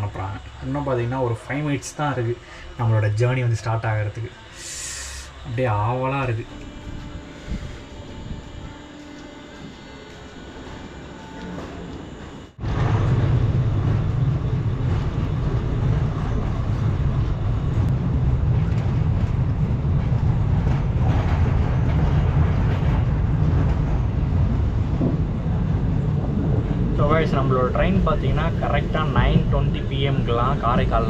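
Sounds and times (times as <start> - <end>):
train wheels rumbling on rails: 6.2 - 31.0.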